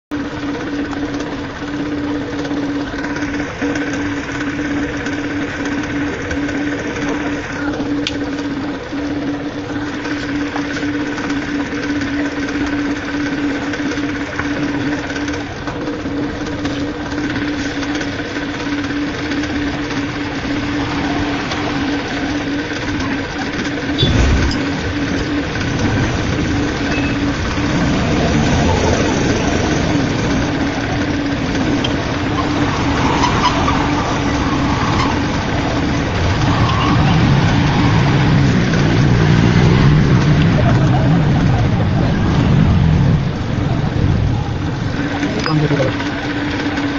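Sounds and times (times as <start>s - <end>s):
engine humming: 0.1s - 46.9s.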